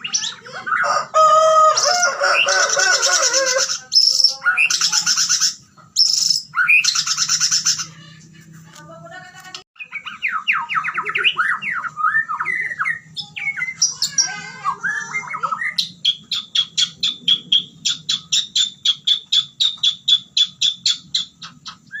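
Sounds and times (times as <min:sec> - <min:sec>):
bird singing whistled phrases: 0:09.8 - 0:22.0.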